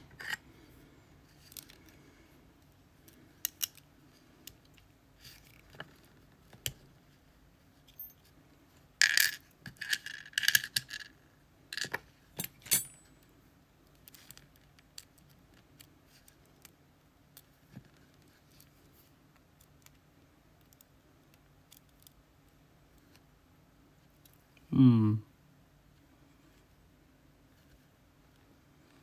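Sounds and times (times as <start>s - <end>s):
small metal parts clinking: 7.9s - 8.2s, 9.0s - 11.1s, 11.8s - 13.1s.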